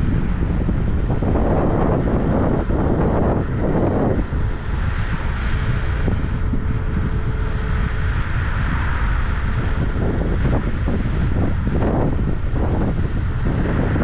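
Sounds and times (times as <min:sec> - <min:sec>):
faint thin whine: 0:00.0 - 0:14.0
wind buffeting microphone: 0:00.0 - 0:14.0.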